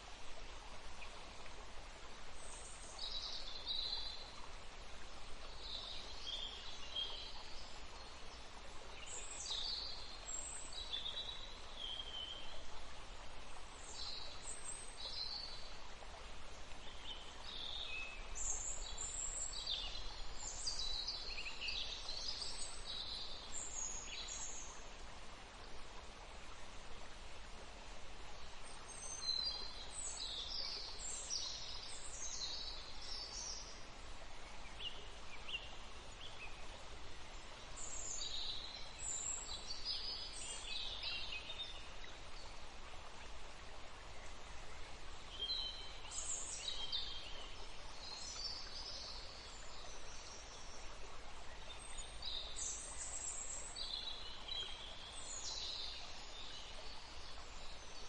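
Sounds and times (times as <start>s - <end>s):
stream water flowing: 0.0s - 58.0s
songbird chirping: 27.8s - 58.0s.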